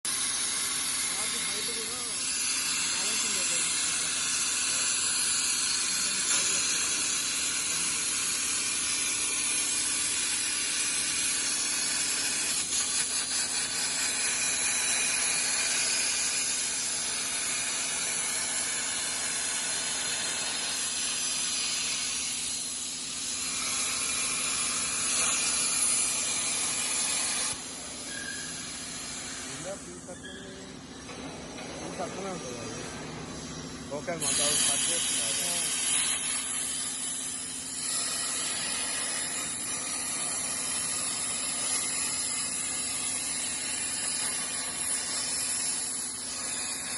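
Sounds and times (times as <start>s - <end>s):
plasma torch arc hissing: 0.1s - 46.9s.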